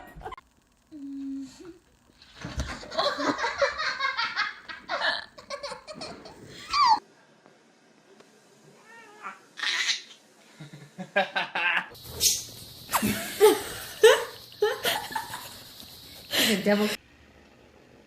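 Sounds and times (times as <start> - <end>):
person laughing hard: 10.6 - 12.0, 12.9 - 15.6.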